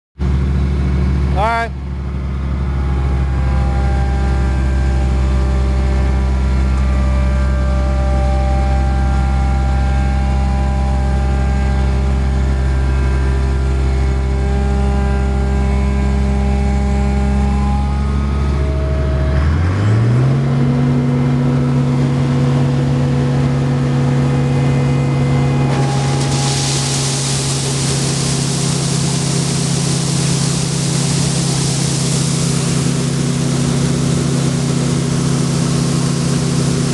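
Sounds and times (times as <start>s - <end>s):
combine harvester humming: 0.2s - 36.9s
loud steady hiss: 25.7s - 36.9s.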